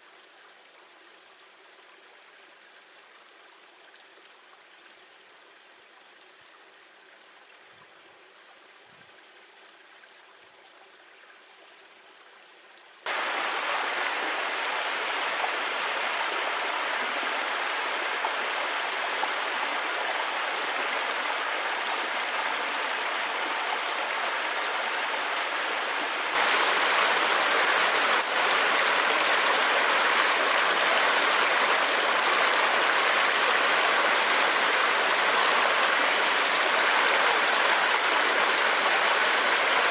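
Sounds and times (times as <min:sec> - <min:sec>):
creek water rushing: 0:13.1 - 0:39.9.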